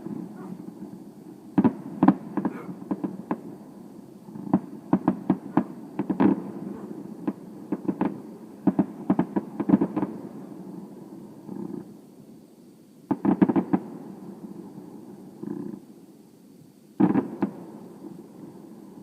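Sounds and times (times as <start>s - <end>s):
fireworks popping and banging: 1.6s - 3.6s, 4.4s - 6.6s, 7.2s - 10.2s, 13.1s - 13.9s, 17.0s - 17.6s.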